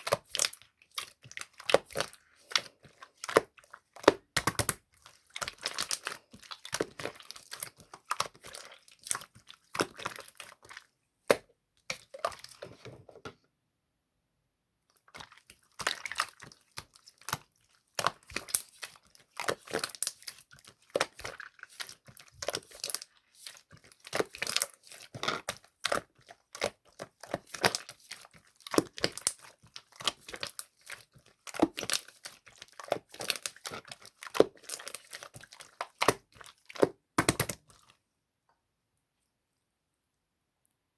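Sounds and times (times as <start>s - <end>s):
slime crackling and popping: 15.9s - 37.7s.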